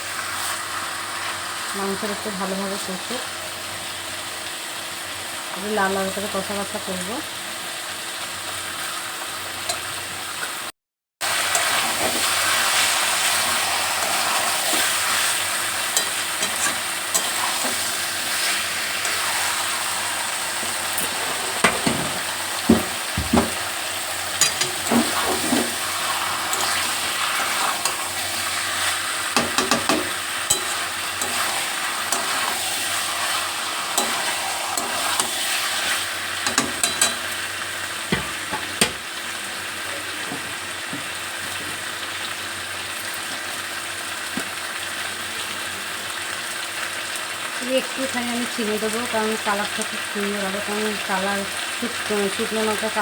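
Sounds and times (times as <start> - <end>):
chicken sizzling in hot oil: 0.0 - 53.0
spatula knocking against pan: 29.4 - 30.7, 38.1 - 39.0.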